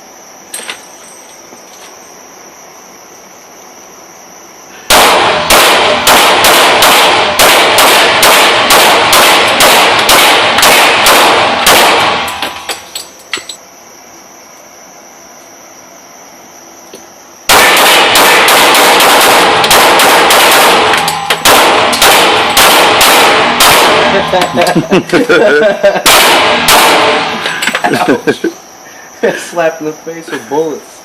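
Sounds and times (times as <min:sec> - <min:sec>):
pistol gunshots: 0:04.9 - 0:12.7, 0:17.5 - 0:24.6, 0:26.0 - 0:27.4.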